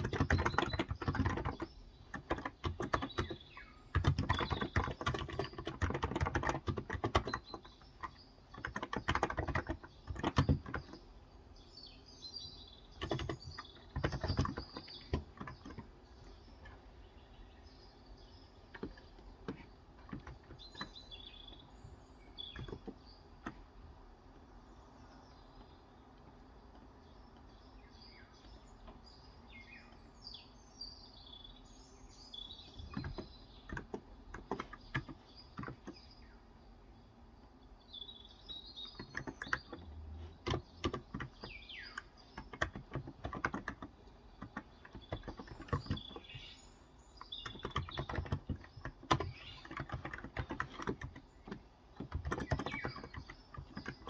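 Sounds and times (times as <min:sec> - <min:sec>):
keyboard typing clicks: 0:00.0 - 0:11.0, 0:13.0 - 0:15.9, 0:18.7 - 0:21.6, 0:22.5 - 0:23.6, 0:32.8 - 0:36.0, 0:38.8 - 0:46.5, 0:47.2 - 0:54.0
birds chirping: 0:00.0 - 0:54.0.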